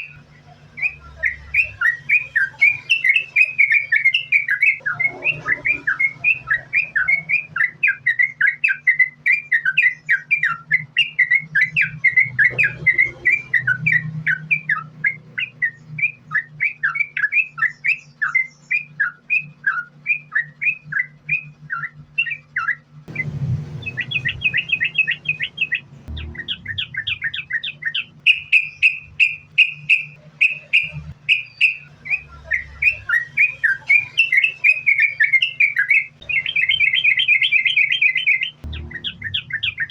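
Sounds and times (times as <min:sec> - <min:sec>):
bulbul singing chirping notes: 0:00.0 - 0:39.9
steady low hum: 0:00.0 - 0:39.9.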